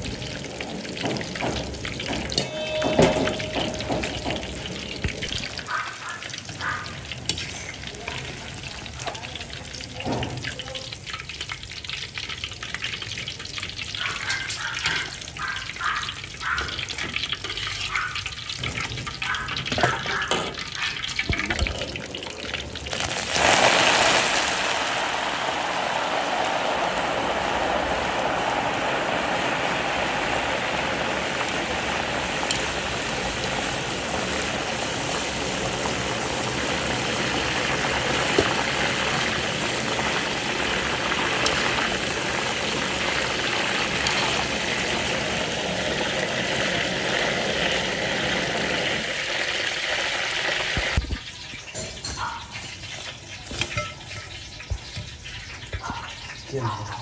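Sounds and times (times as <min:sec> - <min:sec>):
water gushing from a tap: 0:04.5 - 0:51.8.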